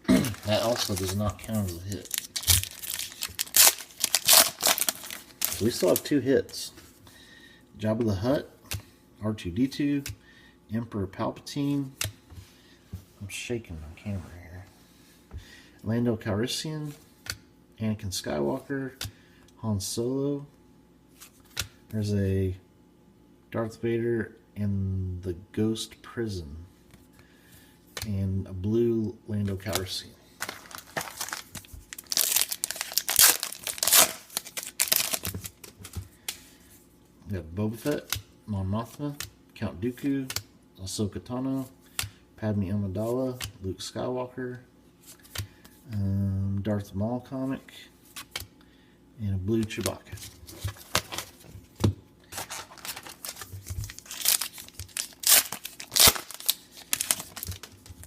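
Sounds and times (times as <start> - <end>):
card pack wrapper crinkling: 0.2 - 6.1, 29.7 - 35.5, 52.3 - 58.0.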